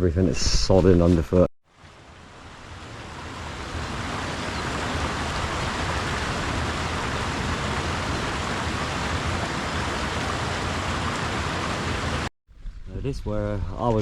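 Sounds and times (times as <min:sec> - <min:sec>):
rushing water: 0:01.7 - 0:12.3.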